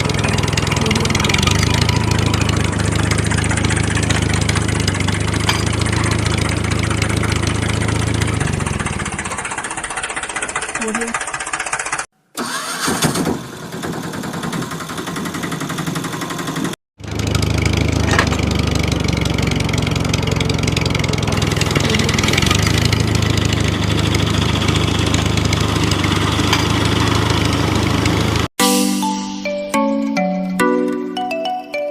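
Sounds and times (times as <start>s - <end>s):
small motor running: 0.0s - 12.1s, 17.3s - 28.4s.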